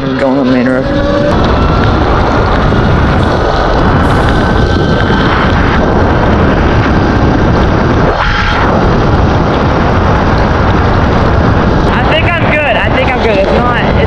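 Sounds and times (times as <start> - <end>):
wind buffeting microphone: 0.0 - 14.0
thin steady whine: 0.1 - 14.0
rain and tyre spray on wet road: 1.4 - 8.5.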